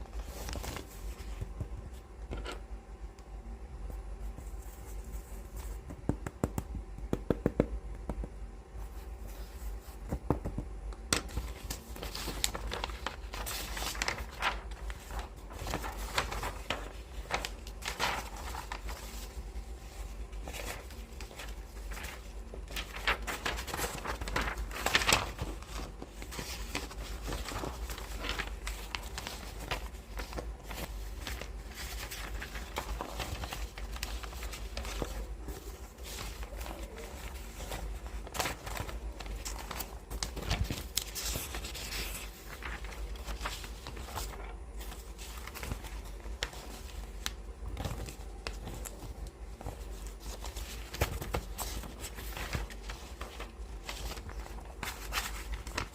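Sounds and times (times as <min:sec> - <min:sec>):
paper pages rustling and flipping: 0:00.0 - 0:02.7, 0:03.9 - 0:07.7, 0:08.8 - 0:55.9
hands tapping books: 0:05.7 - 0:08.4, 0:10.0 - 0:11.3.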